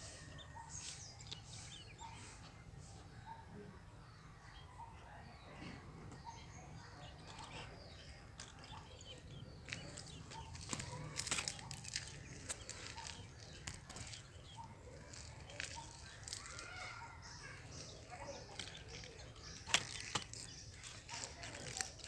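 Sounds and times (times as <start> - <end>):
young birds chirping faintly: 0.0 - 22.0
clicks and rustles: 7.1 - 22.0.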